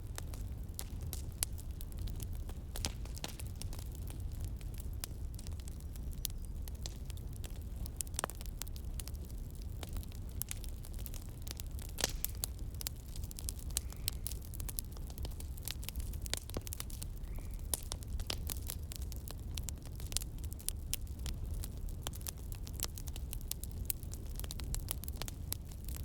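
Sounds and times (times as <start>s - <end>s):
campfire crackling: 0.0s - 26.0s
wood pops and snaps: 12.0s - 12.4s.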